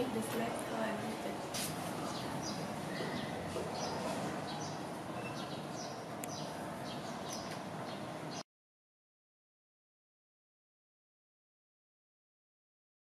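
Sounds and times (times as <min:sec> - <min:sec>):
outdoor background noise: 0:00.0 - 0:08.4
small birds chirping: 0:01.9 - 0:08.4.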